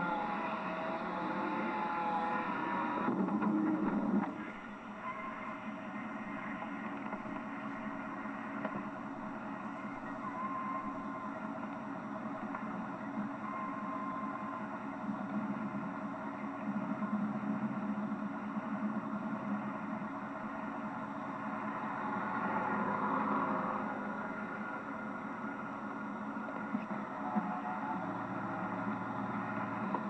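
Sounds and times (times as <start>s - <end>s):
car engine: 0.0s - 4.9s
road noise: 0.0s - 13.3s, 14.4s - 30.0s.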